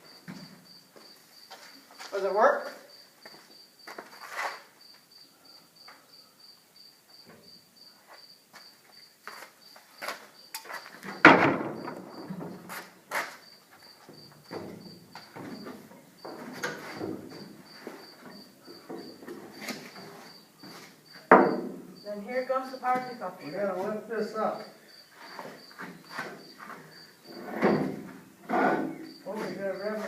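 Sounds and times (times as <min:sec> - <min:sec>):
cricket chirping: 0:00.0 - 0:30.0
knocks and clanks: 0:11.1 - 0:12.9, 0:14.1 - 0:17.6, 0:21.3 - 0:21.8, 0:25.8 - 0:29.0.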